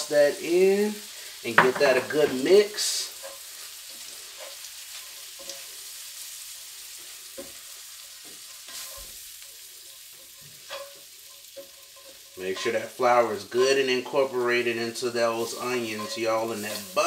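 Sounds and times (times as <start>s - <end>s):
onions sizzling in a skillet: 0.0s - 17.0s
spatula scraping a pan: 1.0s - 17.0s.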